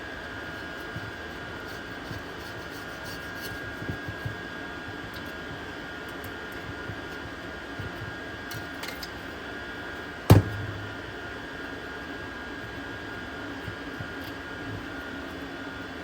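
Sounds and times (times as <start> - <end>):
mechanical hum with high whine: 0.0 - 16.0
sharp knock: 10.3 - 11.1
short low thud: 10.3 - 11.1.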